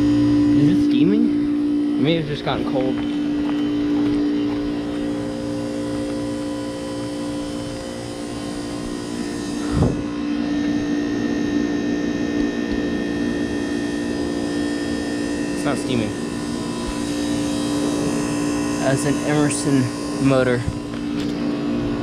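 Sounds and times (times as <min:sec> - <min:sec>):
heat pump humming: 0:00.0 - 0:22.0.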